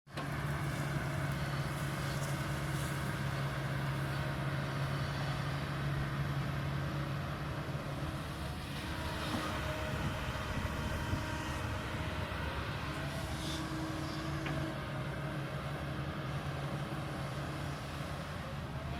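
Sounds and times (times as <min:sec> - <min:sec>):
excavator diesel engine running: 0:00.1 - 0:18.9.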